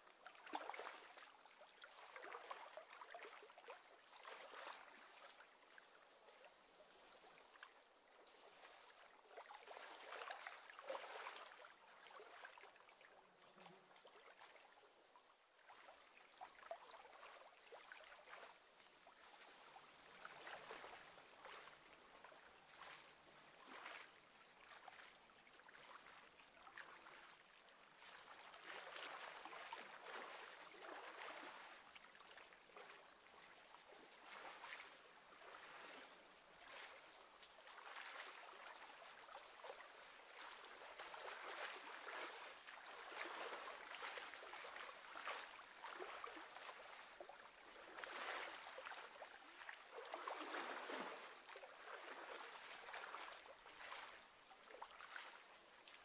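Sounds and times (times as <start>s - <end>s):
lake water lapping: 27.0s - 56.0s.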